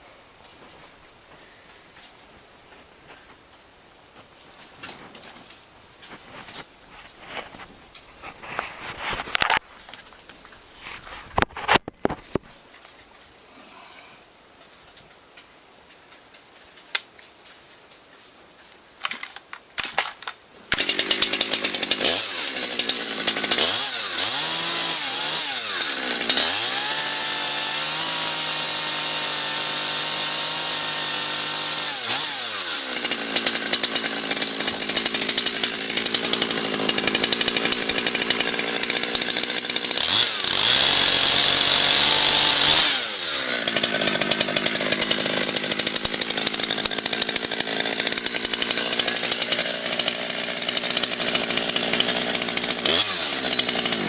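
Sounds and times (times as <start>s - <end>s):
chainsaw starting and revving: 20.7s - 54.0s.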